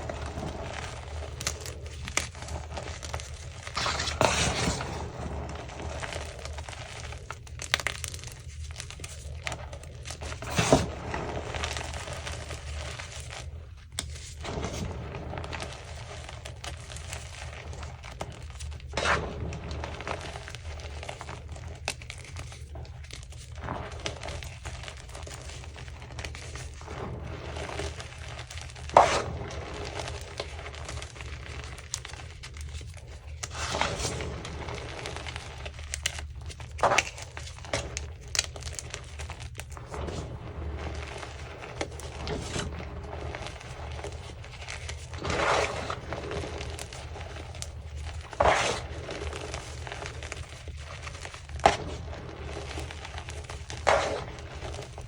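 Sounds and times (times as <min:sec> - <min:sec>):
chalk crunching and crumbling: 0:00.0 - 0:55.0
sharp chalk crunches: 0:00.2 - 0:07.3, 0:10.2 - 0:13.2, 0:26.2 - 0:32.3, 0:33.3 - 0:55.0.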